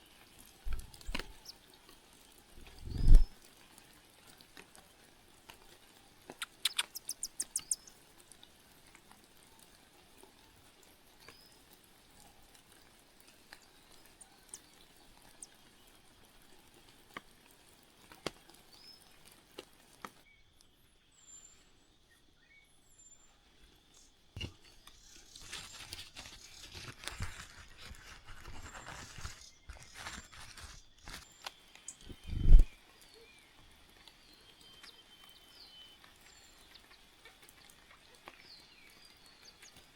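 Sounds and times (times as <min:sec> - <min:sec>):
rustling: 0:00.6 - 0:01.5, 0:24.4 - 0:32.7
faint bird chirps: 0:00.7 - 0:01.7, 0:02.6 - 0:03.4, 0:06.3 - 0:08.1, 0:20.3 - 0:39.9
sharp chirps or clicks: 0:06.4 - 0:07.9.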